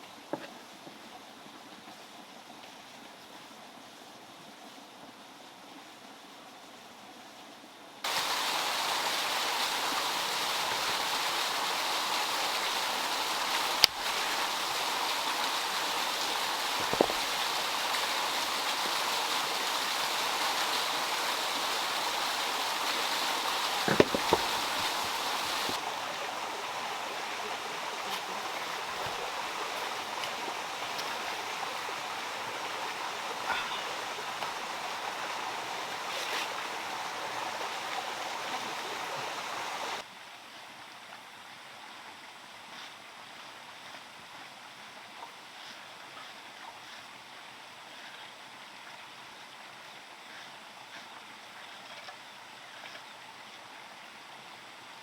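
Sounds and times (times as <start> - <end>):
running water rushing: 8.0 - 55.0
sharp knocks: 16.8 - 17.3, 23.9 - 25.1.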